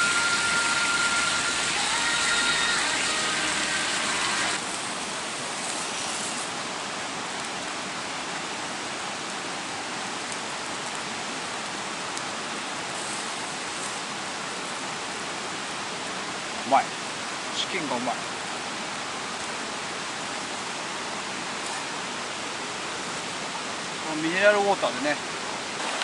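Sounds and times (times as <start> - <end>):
meat sizzling on a grill: 0.0 - 6.6, 13.0 - 14.0.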